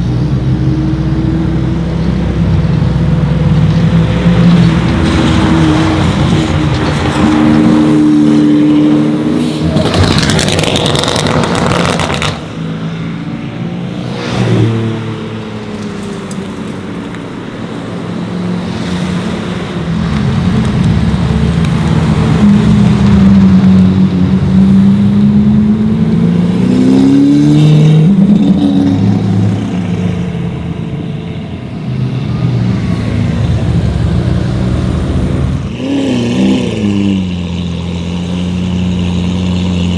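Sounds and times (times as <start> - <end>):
sports car engine revving: 31.8 - 39.9.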